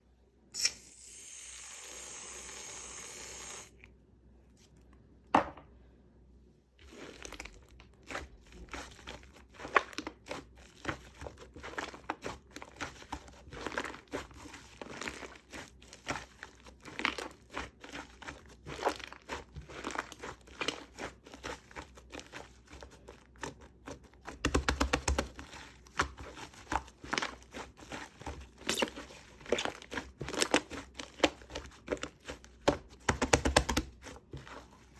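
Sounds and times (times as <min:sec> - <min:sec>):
shaving foam spraying from can: 0:00.6 - 0:03.7.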